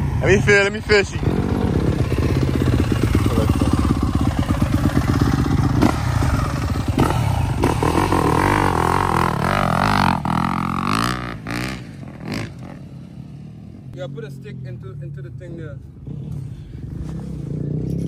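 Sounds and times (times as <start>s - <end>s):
dirt bike engine running: 0.0s - 13.9s.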